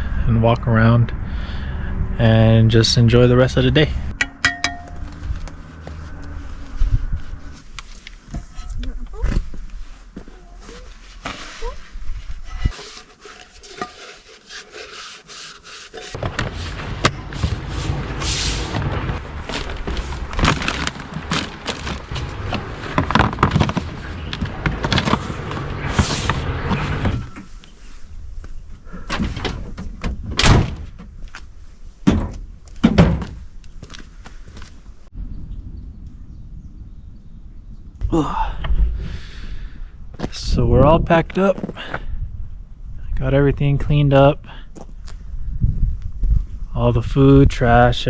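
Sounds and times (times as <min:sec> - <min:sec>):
steady low rumble: 0:00.0 - 0:10.2, 0:16.2 - 0:27.3, 0:34.9 - 0:41.4
gear being packed away: 0:12.4 - 0:27.8
lids or doors shutting: 0:19.8 - 0:27.6, 0:29.0 - 0:31.2.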